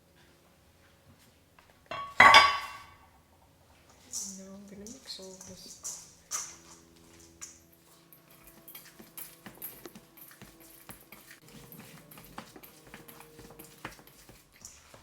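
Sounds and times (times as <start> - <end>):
light clicks and taps of mixing: 3.8 - 15.0.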